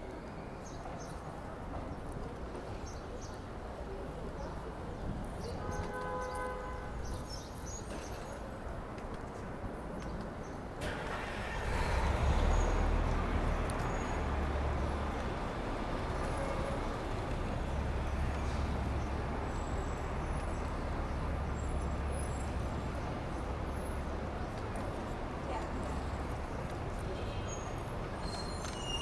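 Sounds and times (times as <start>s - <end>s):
passing traffic rumble: 10.7s - 29.0s.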